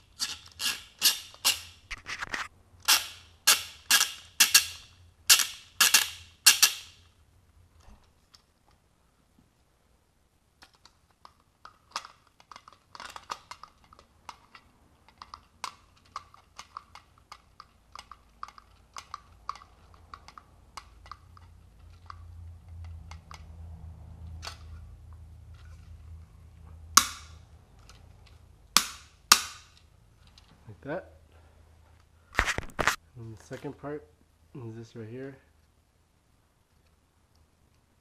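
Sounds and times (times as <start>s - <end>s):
plastic parts clicking and tapping: 10.6s - 23.5s.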